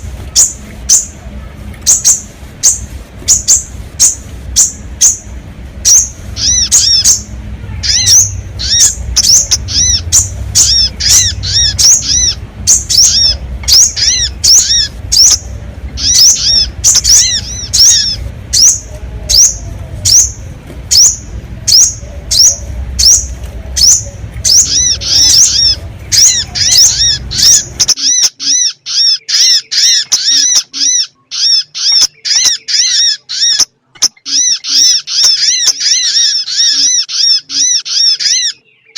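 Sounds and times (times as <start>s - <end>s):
low background hum: 0.0s - 38.9s
high sharp bird-lure chirps: 7.9s - 38.6s.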